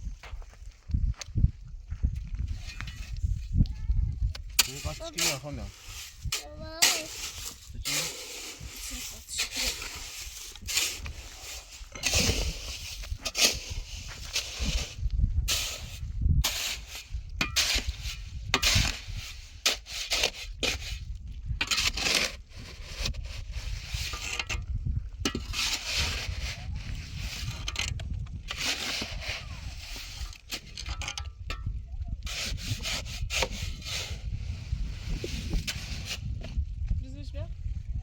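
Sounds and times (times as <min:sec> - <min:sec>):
rubbing or scraping strokes: 0:04.6 - 0:24.6, 0:25.3 - 0:30.9, 0:32.2 - 0:36.5.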